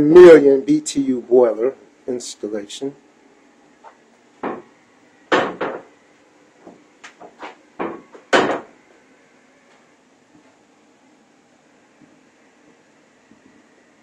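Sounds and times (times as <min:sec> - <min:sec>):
knocks and clunks: 0:05.3 - 0:05.9, 0:06.7 - 0:08.7.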